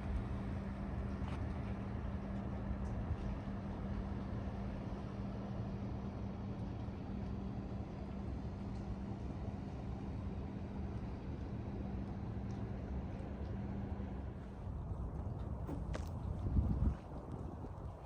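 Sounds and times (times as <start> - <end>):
wind buffeting microphone: 14.4 - 18.0.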